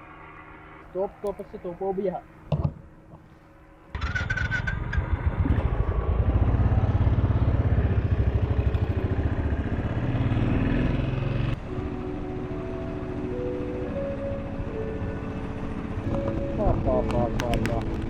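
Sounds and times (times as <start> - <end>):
motorcycle engine running: 3.9 - 18.0.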